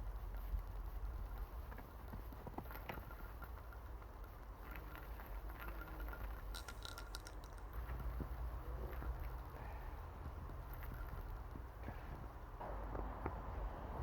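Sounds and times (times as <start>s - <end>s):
wind rumble on microphone: 7.6s - 14.0s.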